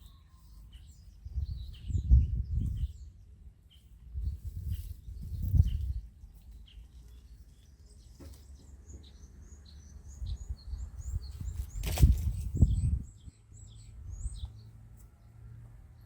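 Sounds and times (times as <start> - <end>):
small songbirds chirping: 0.0 - 16.0
loud thump or rustle: 11.6 - 12.6.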